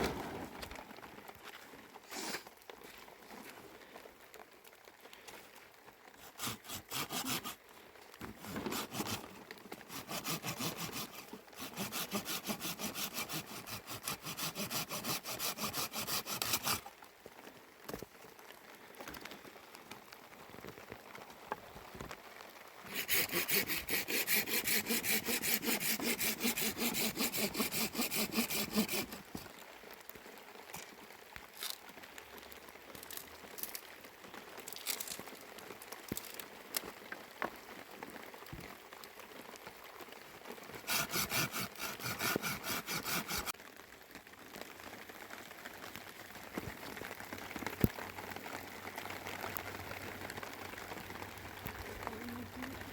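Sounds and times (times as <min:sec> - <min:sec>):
hand saw cutting: 0:06.2 - 0:07.6, 0:08.3 - 0:16.9, 0:22.9 - 0:29.4, 0:40.8 - 0:43.5.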